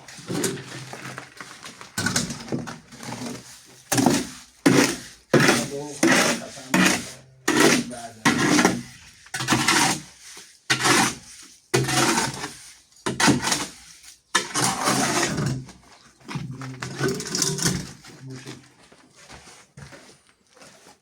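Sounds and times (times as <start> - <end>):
metal tool scraping wet mortar: 2.9 - 18.2.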